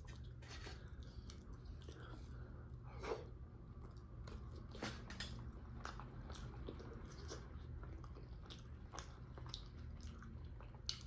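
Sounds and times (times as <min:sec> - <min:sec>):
wet chewing and lip smacks: 0:05.4 - 0:11.0.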